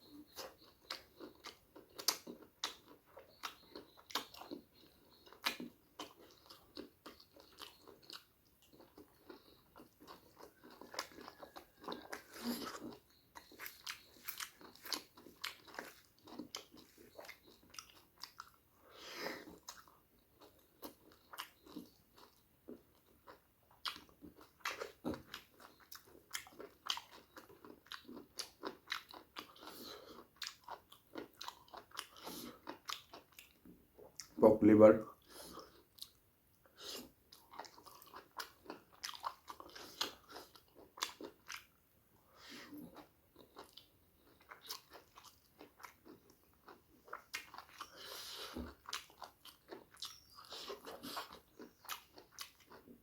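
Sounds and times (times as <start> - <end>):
wet chewing and lip smacks: 0.0 - 34.4, 35.2 - 53.0
crunches of biting: 0.3 - 18.6.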